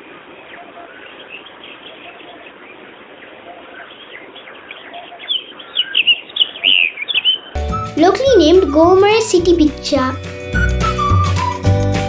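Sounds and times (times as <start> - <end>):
bird chirping: 3.5 - 7.6.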